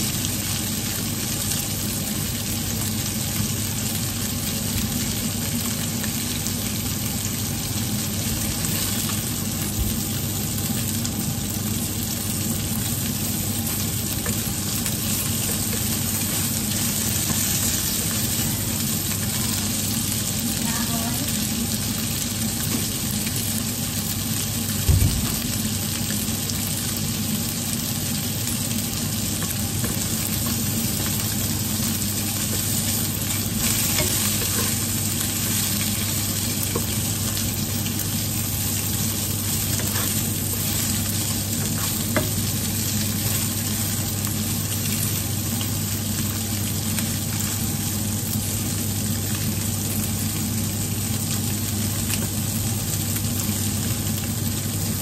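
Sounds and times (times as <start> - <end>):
food sizzling in a wok: 0.0 - 55.0
steady low hum: 27.0 - 45.6
wooden spatula scraping a pan: 32.4 - 37.0, 39.6 - 41.0.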